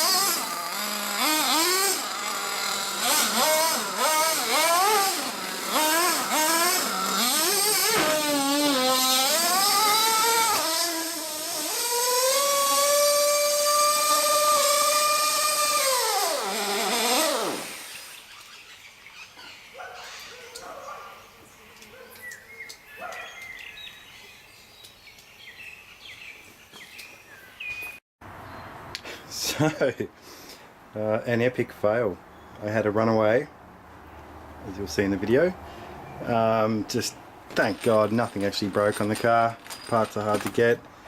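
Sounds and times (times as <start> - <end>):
rc car engine revving: 0.0 - 18.4
faint bird chirps: 18.1 - 28.6.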